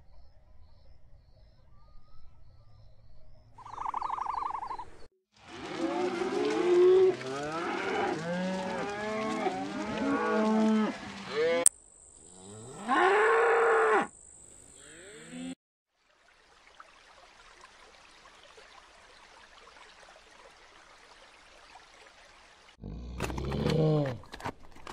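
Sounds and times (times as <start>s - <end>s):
cattle mooing: 5.5s - 11.7s.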